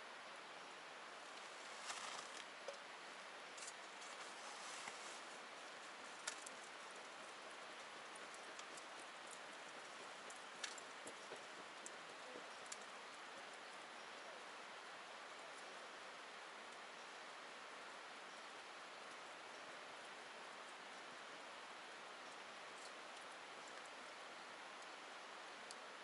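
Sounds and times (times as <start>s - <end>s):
campfire crackling: 1.2s - 13.8s.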